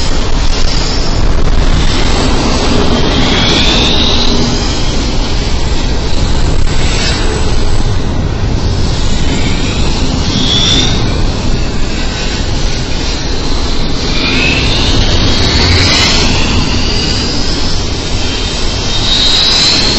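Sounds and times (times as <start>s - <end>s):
steel wheels rumbling on rail: 0.0s - 19.9s
wheels squealing: 8.5s - 19.9s.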